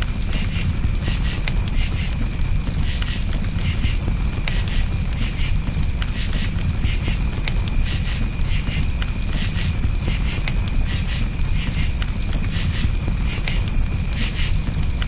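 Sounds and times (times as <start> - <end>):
burning wood crackling: 0.0 - 15.0
campfire low rumble: 0.0 - 15.0
crickets chirping: 0.0 - 15.0.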